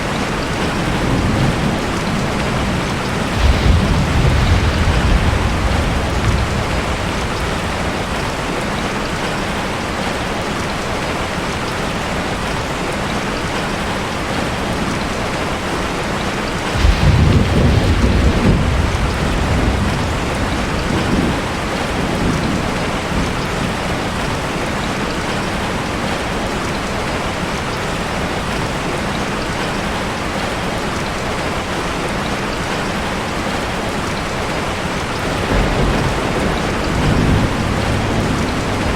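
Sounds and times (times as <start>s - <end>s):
steady rain: 0.0s - 38.9s
thunder rumble: 0.6s - 10.2s, 16.6s - 25.4s, 35.1s - 38.9s.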